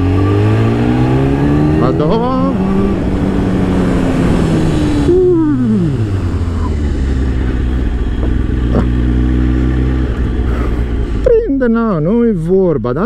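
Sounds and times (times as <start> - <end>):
motorcycle engine revs falling: 0.0 - 11.2
wind rush on microphone: 0.6 - 8.8.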